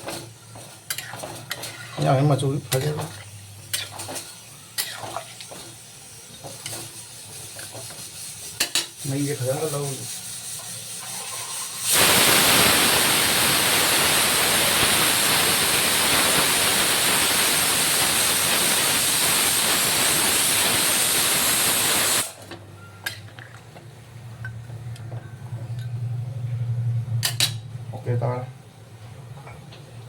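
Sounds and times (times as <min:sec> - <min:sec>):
loud steady hissing: 0:02.0 - 0:22.5.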